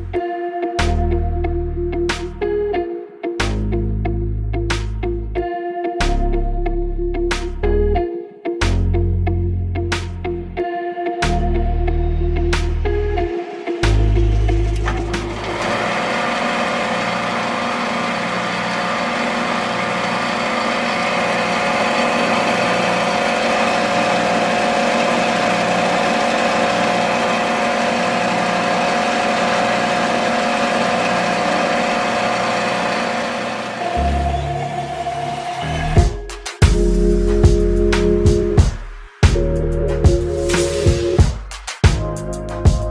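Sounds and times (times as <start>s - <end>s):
small motor running: 14.9s - 35.8s.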